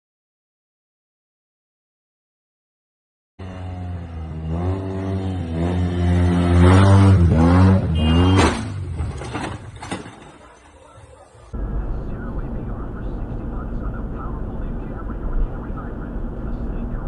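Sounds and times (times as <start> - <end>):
vehicle engine accelerating: 3.4 - 9.4.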